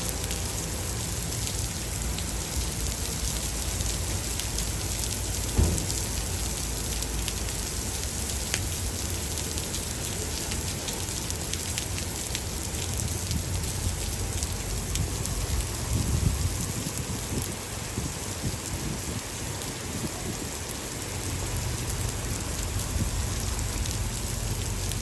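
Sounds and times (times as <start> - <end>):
rain pattering: 0.0 - 25.0
thunder rumble: 5.2 - 6.9
sharp thump: 5.6 - 6.1.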